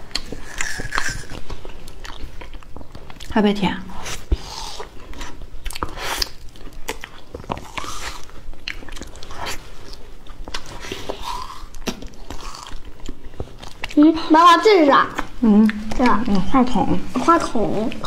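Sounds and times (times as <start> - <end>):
chewing and lip smacking: 0.0 - 3.4, 4.0 - 14.0.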